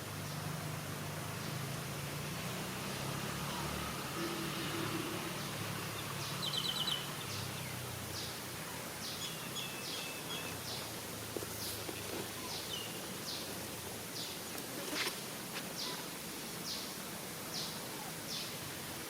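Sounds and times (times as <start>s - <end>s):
birds chirping: 5.2s - 15.1s.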